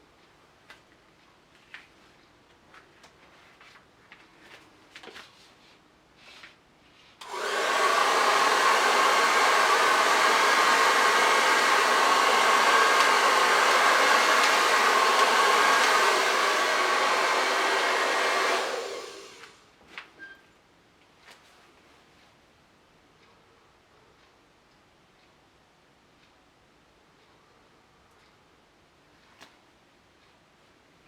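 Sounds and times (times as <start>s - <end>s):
faint small clicks and taps: 0.2s - 5.3s
hair dryer blowing: 7.2s - 19.6s.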